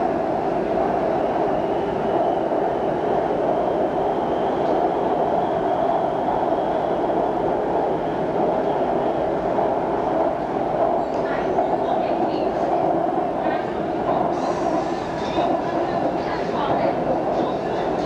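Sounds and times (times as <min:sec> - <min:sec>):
train carriage running noise: 0:00.0 - 0:18.0.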